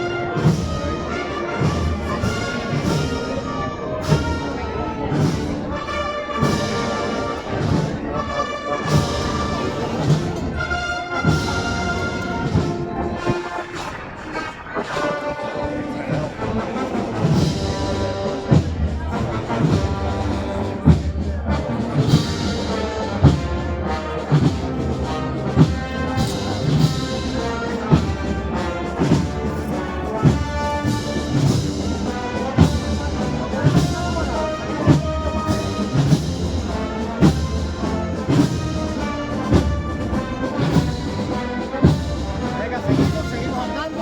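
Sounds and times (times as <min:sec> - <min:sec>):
wind band playing march: 0:00.0 - 0:44.0
deep drum beat: 0:17.2 - 0:44.0.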